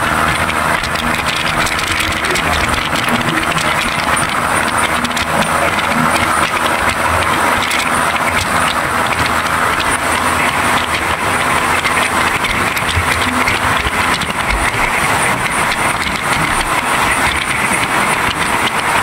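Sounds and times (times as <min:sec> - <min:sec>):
train travel rush: 0:00.0 - 0:19.0
wheels rattling on track: 0:00.0 - 0:19.0.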